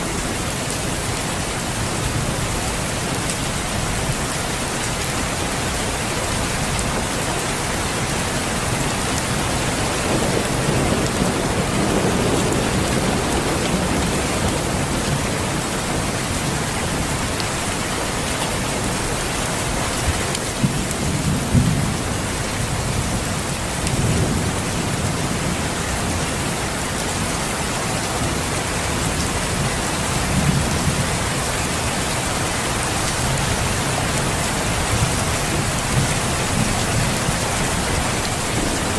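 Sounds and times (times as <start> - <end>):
steady rain falling: 0.0 - 38.9
thunder rolling: 9.8 - 16.1.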